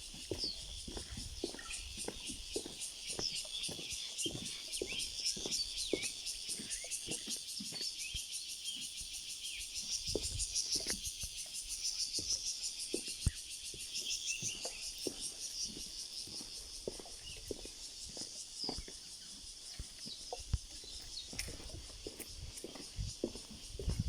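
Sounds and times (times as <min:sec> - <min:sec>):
birds chirping: 0:00.0 - 0:24.0
insects droning: 0:00.0 - 0:24.0.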